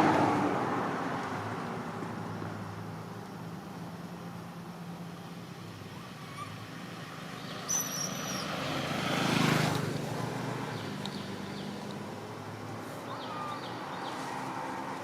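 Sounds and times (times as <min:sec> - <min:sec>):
motor vehicle passing by: 0:06.0 - 0:15.0.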